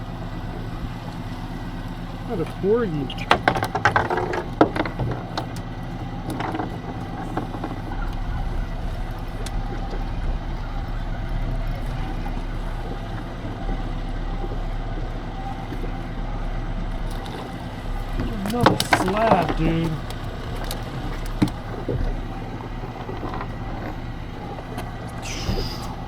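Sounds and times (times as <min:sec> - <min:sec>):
boat engine idling: 0:00.0 - 0:26.0
deep rumble: 0:00.0 - 0:26.0
water wash: 0:00.0 - 0:26.0
wind: 0:00.0 - 0:26.0
sharp clicks and knocks: 0:02.4 - 0:08.4, 0:16.9 - 0:26.0.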